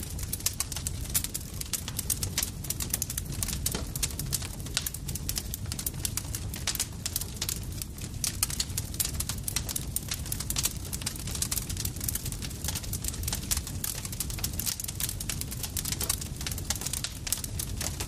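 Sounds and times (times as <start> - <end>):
campfire crackling and popping: 0.0 - 18.0
low rumble of burning wood: 0.0 - 18.0.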